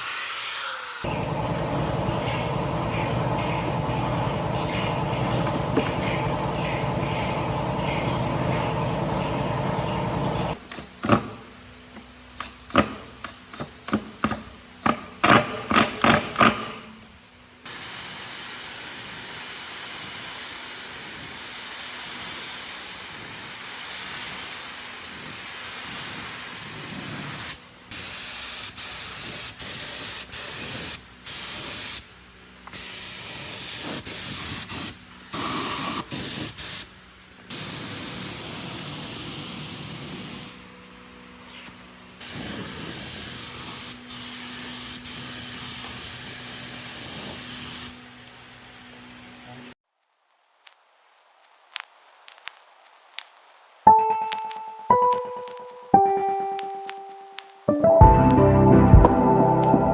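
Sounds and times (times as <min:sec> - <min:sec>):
steady machine noise: 0:01.1 - 0:10.6
steady spraying hiss: 0:17.6 - 0:53.8.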